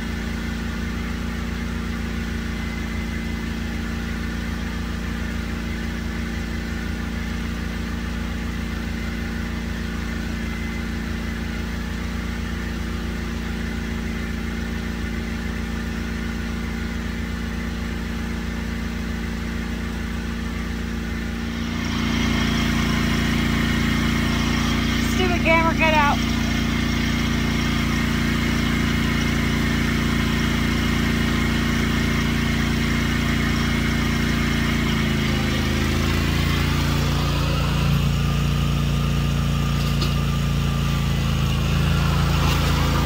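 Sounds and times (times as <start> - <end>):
tractor engine idling: 20.0 - 43.0.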